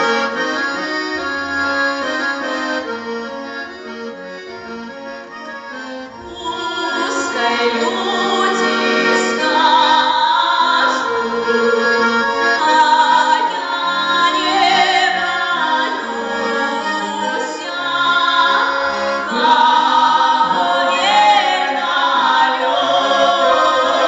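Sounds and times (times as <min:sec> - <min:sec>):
accordion playing chords: 0:00.0 - 0:24.0
person singing: 0:06.2 - 0:11.7, 0:12.6 - 0:24.0.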